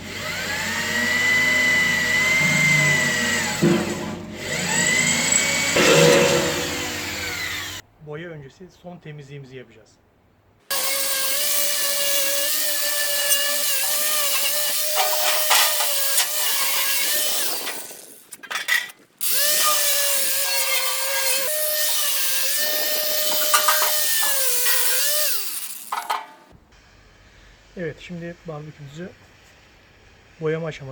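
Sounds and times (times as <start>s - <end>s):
power tool grinding metal: 0.0s - 7.8s, 10.7s - 18.2s, 19.2s - 26.5s.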